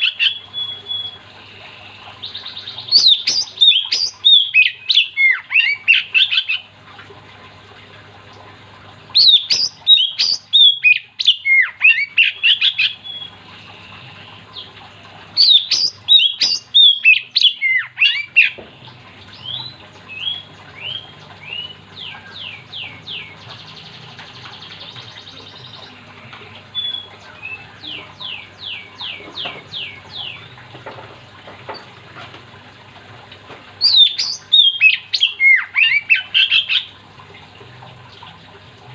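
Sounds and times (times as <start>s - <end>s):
bird song whistles and chirps: 0.0s - 1.2s, 2.3s - 6.6s, 9.2s - 13.4s, 15.4s - 18.6s, 19.4s - 26.0s, 26.7s - 30.6s, 33.8s - 36.9s.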